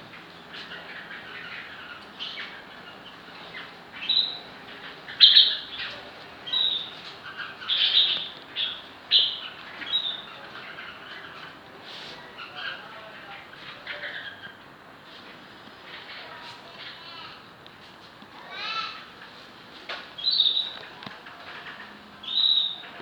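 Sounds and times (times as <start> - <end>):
birds chirping and squawking: 0.3 - 11.5.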